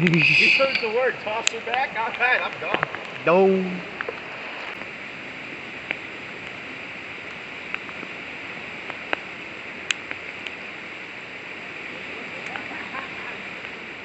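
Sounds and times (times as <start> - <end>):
sharp ticks: 0.0 - 3.3
river water rushing: 0.0 - 14.0.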